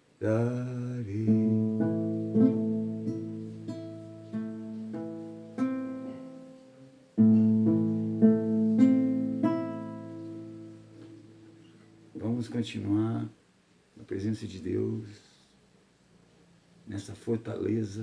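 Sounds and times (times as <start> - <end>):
acoustic guitar picking: 0.5 - 12.4.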